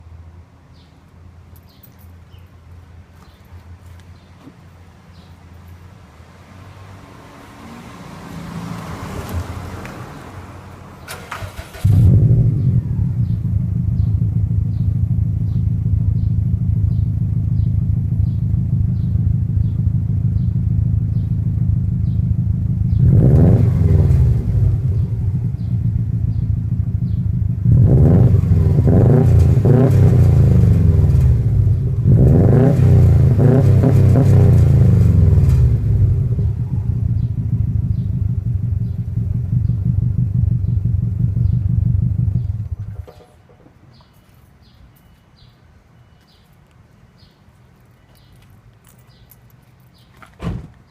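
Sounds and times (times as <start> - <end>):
engine revving: 6.8 - 43.0
car engine starting and idling: 8.6 - 43.3.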